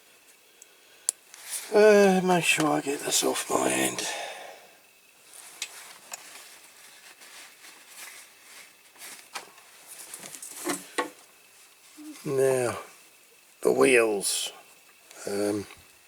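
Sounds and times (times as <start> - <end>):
quiet rustling: 1.3 - 4.1, 5.2 - 13.6.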